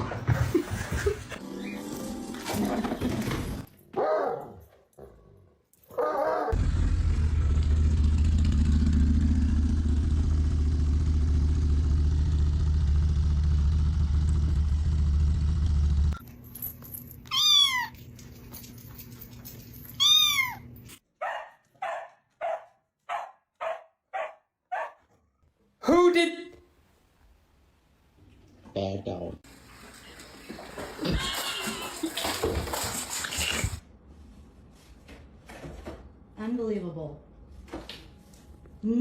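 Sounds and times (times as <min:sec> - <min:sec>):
cat meowing: 0:17.3 - 0:18.0, 0:20.0 - 0:20.7, 0:31.0 - 0:32.0.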